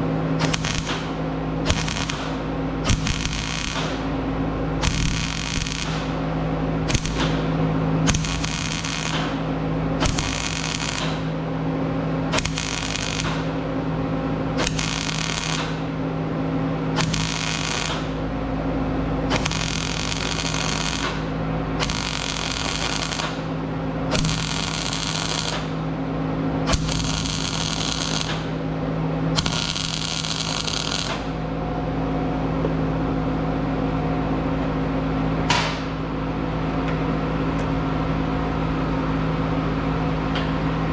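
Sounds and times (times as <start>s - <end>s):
mig welder spot welding: 0.0s - 16.1s, 16.8s - 31.6s
steady hum: 0.0s - 40.9s.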